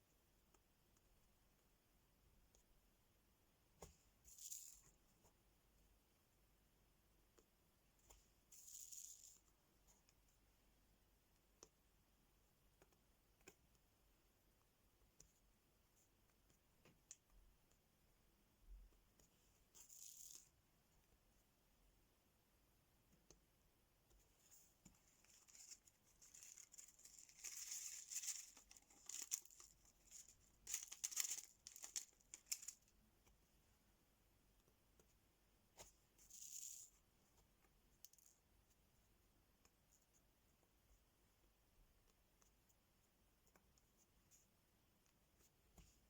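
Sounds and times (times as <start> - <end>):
sticker sheets peeling and crinkling: 25.3 - 32.9.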